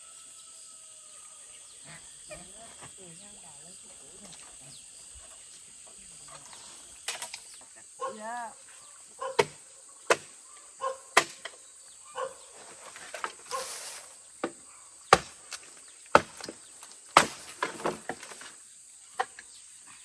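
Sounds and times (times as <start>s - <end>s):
chopping strikes: 9.4s - 10.4s, 11.2s - 11.6s, 14.4s - 18.4s.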